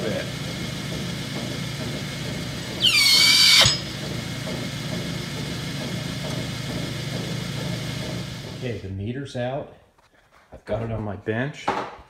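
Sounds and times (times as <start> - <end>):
pump running: 0.0 - 8.8
loud squeal dropping in pitch: 2.8 - 3.9.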